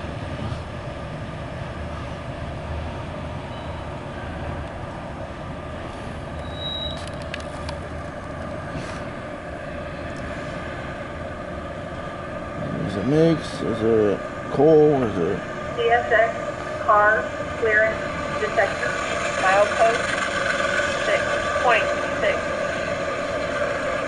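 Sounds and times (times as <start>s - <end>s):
freight train wheels rumbling: 0.0s - 24.0s
high wheel squeal: 3.5s - 4.0s, 6.4s - 7.1s.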